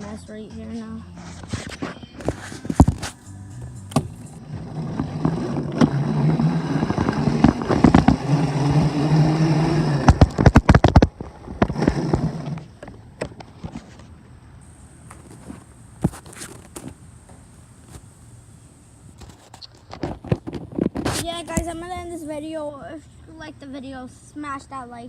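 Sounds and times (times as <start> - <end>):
dirt bike motor running: 2.2 - 13.9, 14.6 - 19.5.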